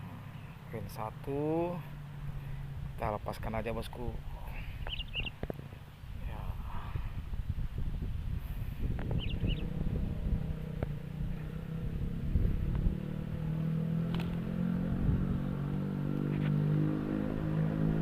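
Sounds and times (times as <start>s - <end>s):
low microphone rumble: 1.8s - 16.1s
motor engine running: 8.4s - 15.6s.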